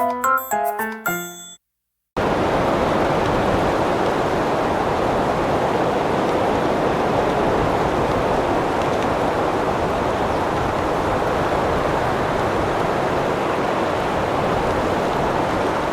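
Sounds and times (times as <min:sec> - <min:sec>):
short piano jingle: 0:00.0 - 0:01.6
wind blowing across microphone: 0:02.2 - 0:15.9.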